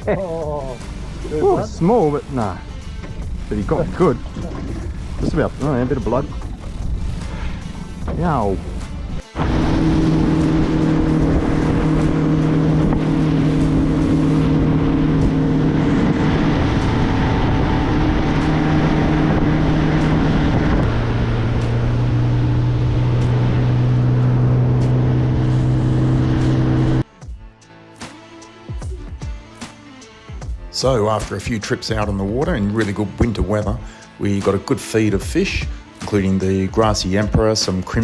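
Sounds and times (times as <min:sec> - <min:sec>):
motorboat engine running: 0:00.0 - 0:27.0
water noise: 0:00.0 - 0:27.0
rushing wind: 0:08.6 - 0:24.3.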